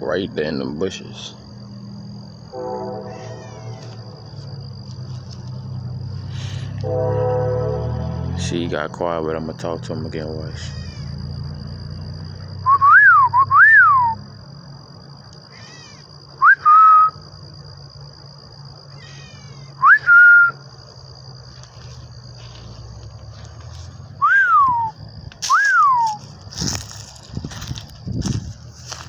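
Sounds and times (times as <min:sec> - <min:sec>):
person whistling: 0:12.6 - 0:14.2, 0:16.4 - 0:17.2, 0:19.8 - 0:20.6, 0:24.2 - 0:26.2.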